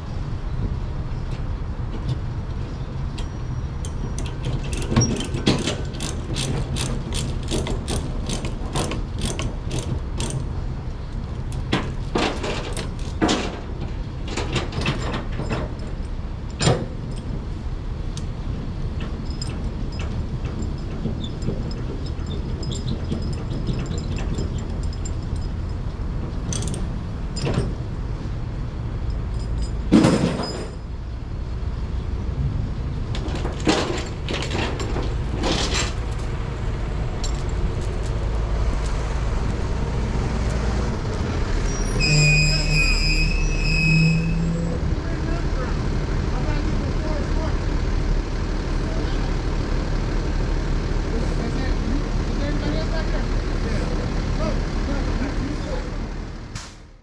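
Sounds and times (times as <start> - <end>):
metallic clicks and clanks: 3.2 - 10.5, 19.0 - 27.7, 56.5 - 56.9
low engine rumble: 30.8 - 57.0.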